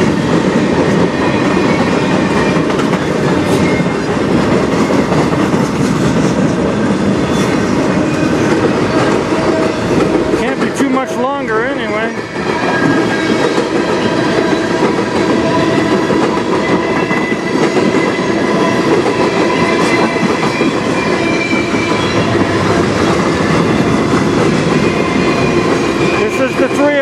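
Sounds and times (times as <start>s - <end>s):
train wheels clattering on rail: 0.0s - 27.0s.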